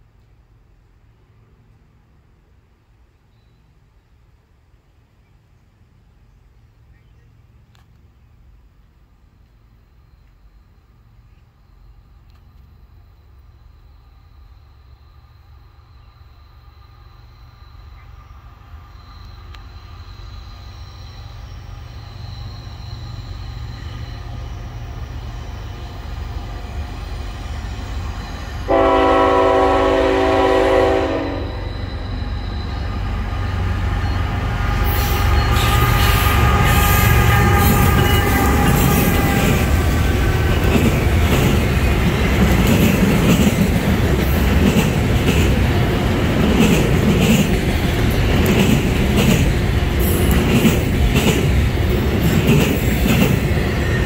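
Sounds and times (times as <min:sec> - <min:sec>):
diesel locomotive engine rumble: 0:04.2 - 0:54.0
wheels rushing on rail: 0:06.0 - 0:54.0
locomotive horn blast: 0:28.6 - 0:31.9, 0:34.5 - 0:39.8.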